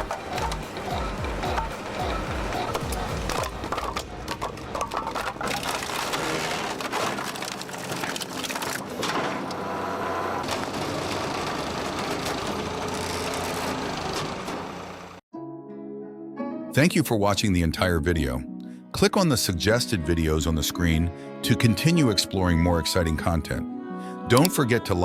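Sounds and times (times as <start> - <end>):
wood splitter machine running: 0.0 - 15.2
logs cracking and splintering: 2.7 - 9.6.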